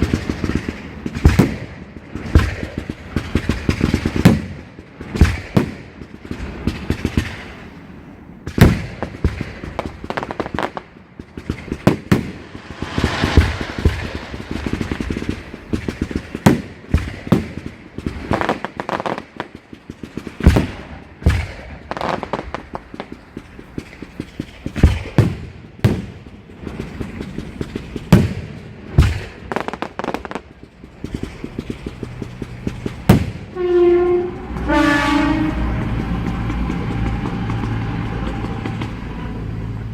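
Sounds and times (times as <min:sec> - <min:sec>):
fireworks bangs: 0:00.0 - 0:39.4
fireworks crackling: 0:00.0 - 0:39.9
horn sounding: 0:33.6 - 0:36.0.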